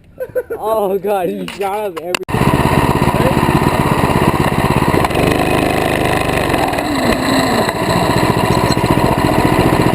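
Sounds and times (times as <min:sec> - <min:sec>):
small engine puttering: 0:02.3 - 0:09.9.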